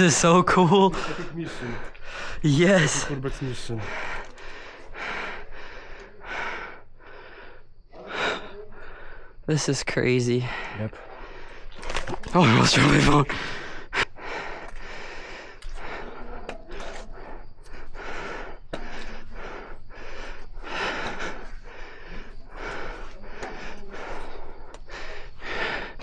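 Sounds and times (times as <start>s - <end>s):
person breathing hard: 1.0s - 3.0s, 3.7s - 9.4s, 13.2s - 26.0s.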